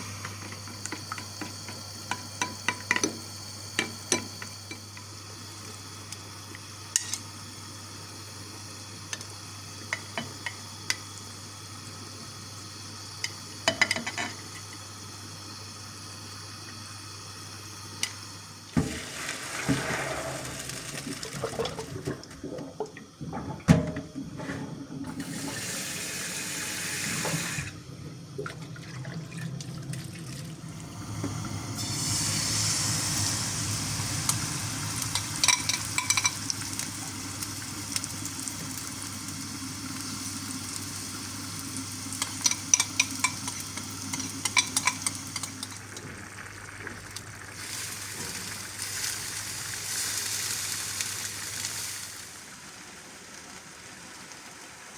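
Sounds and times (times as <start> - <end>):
tap running into sink: 18.7 - 20.2
dishes clinking: 35.2 - 36.4, 42.2 - 45.7.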